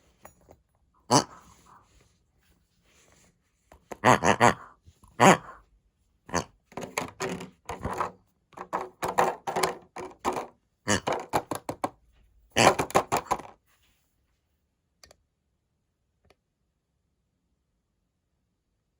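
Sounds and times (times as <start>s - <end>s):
hard plastic clattering: 6.7s - 12.0s, 12.6s - 13.6s.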